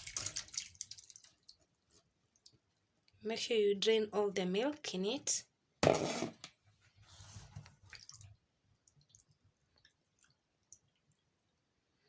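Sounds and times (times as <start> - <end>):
liquid pouring: 0.0 - 1.6
liquid splashing: 0.0 - 1.6
faint drips: 0.0 - 3.2, 7.6 - 12.0
small wet clicks: 0.0 - 3.2, 7.6 - 11.6.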